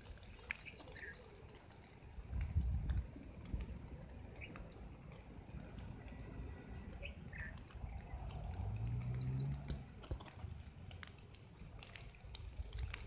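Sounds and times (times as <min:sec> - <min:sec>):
faint clicks: 0:00.0 - 0:13.0
low outdoor rumble: 0:00.0 - 0:13.0
small bird chirping: 0:00.4 - 0:01.3, 0:08.8 - 0:09.6.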